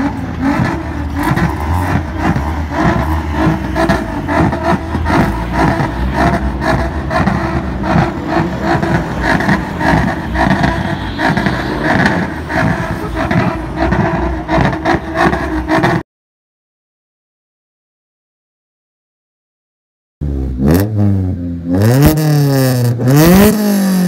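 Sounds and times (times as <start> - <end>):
car engines pulling away: 0.0 - 16.0, 20.2 - 24.0.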